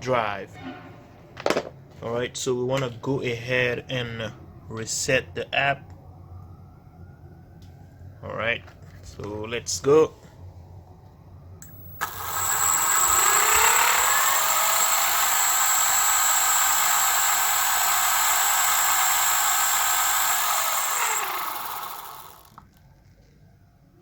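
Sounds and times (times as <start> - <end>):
electric motor whine: 11.6 - 22.6.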